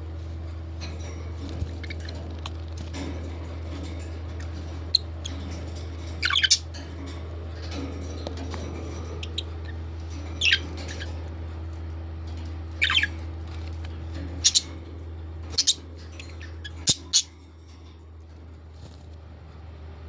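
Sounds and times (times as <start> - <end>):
steady low hum: 0.0 - 20.0
parrots squawking: 6.1 - 6.7, 8.8 - 11.2, 12.7 - 13.3, 14.2 - 14.8, 15.5 - 17.3.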